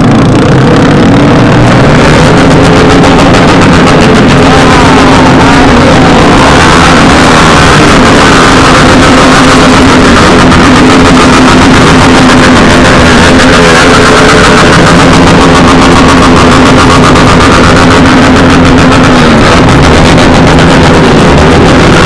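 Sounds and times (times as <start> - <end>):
heavy broadband noise: 0.0 - 22.0
motorcycle engine running: 0.0 - 22.0.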